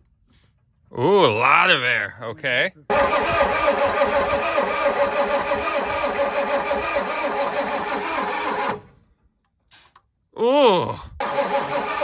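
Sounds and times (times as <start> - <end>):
diesel engine starter cranking: 2.9 - 9.0, 11.2 - 12.0.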